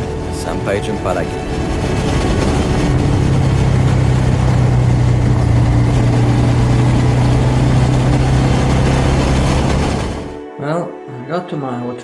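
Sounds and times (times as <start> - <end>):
road and wind noise: 0.0 - 10.4
small motorcycle engine running: 1.5 - 10.4.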